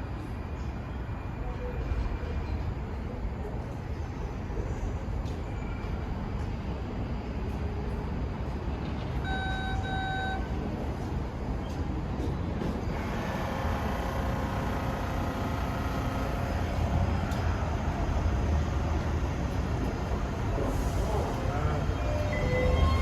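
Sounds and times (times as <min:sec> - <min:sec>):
short electronic beeps: 0:09.2 - 0:10.5
train motors whining: 0:12.9 - 0:18.1.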